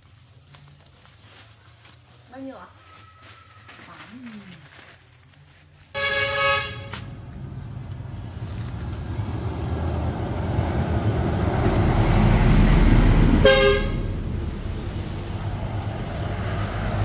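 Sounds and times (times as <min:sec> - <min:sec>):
vehicle rumble and tyre hiss: 0:03.4 - 0:17.0
car horn honking: 0:06.0 - 0:07.2, 0:13.3 - 0:14.3.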